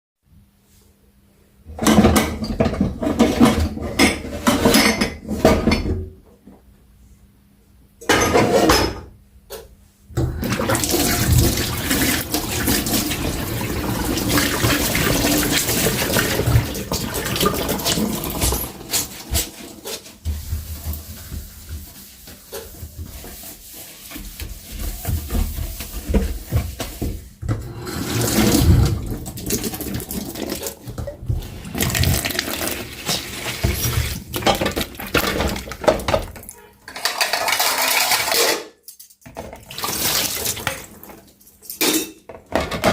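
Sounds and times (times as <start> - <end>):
tap water running into sink: 10.2 - 19.6, 28.0 - 36.5, 39.4 - 41.2.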